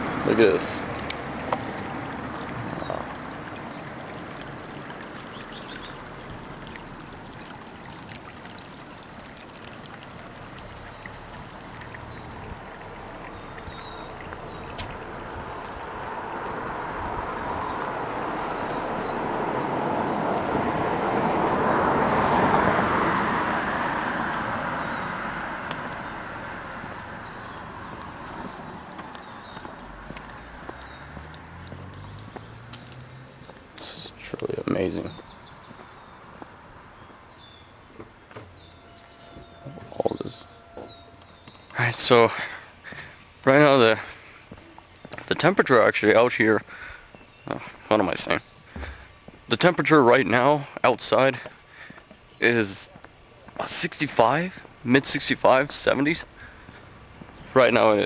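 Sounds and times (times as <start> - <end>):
vehicle road noise passing by: 0.0 - 7.7, 9.9 - 58.0.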